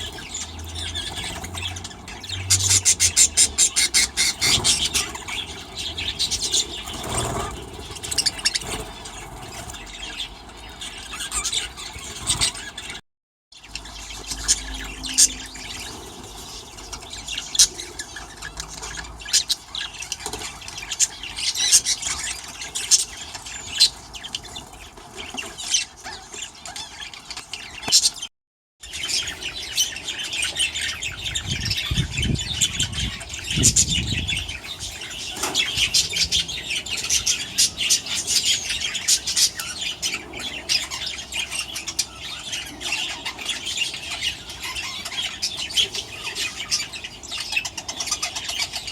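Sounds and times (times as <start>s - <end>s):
budgerigars chattering: 0.0s - 13.0s, 13.6s - 28.2s, 28.8s - 48.9s
low rumble: 13.8s - 17.5s.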